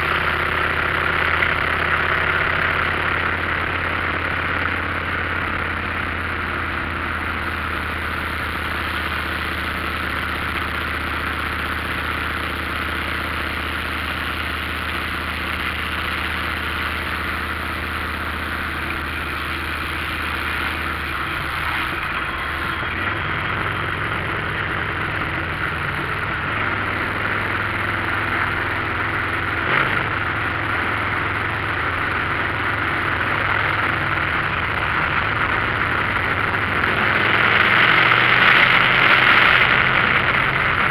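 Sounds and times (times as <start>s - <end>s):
motorcycle engine running: 0.0s - 40.9s
road and wind noise: 0.0s - 40.9s.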